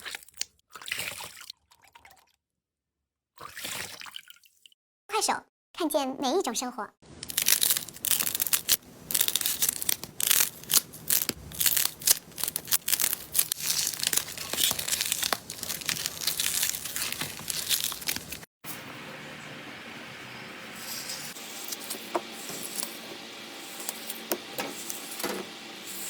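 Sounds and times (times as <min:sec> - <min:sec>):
slime crackling and popping: 0:07.2 - 0:18.5.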